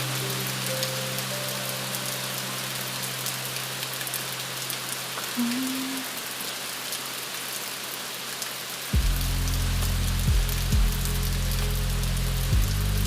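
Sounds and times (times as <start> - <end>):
rain hiss and patter: 0.0 - 13.0
deep low sound: 9.0 - 13.0.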